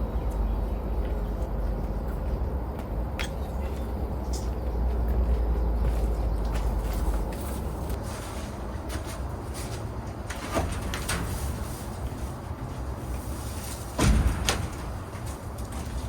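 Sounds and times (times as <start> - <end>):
steady low rumble: 0.0 - 8.0
sharp knocks and clatters: 3.2 - 4.8, 13.7 - 16.0
heavy thump: 14.0 - 15.1.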